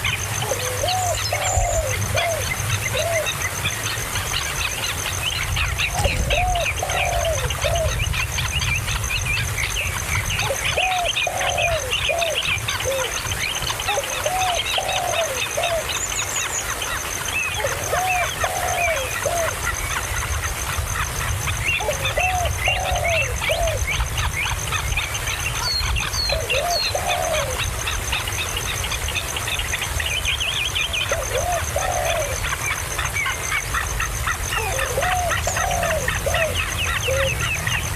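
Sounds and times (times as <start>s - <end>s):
birds chirping: 0.0s - 37.9s
bird hooting call: 0.4s - 3.4s, 5.9s - 8.0s, 10.4s - 13.2s, 13.9s - 16.0s, 17.5s - 19.7s, 21.8s - 23.9s, 26.2s - 27.6s, 31.1s - 32.4s, 34.6s - 37.5s.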